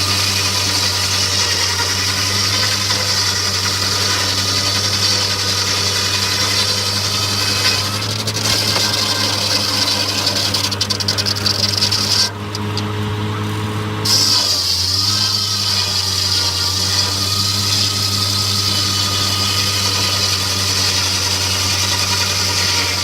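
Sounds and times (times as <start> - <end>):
sawmill engine hum: 0.0 - 23.0
saw high hiss: 14.0 - 23.0.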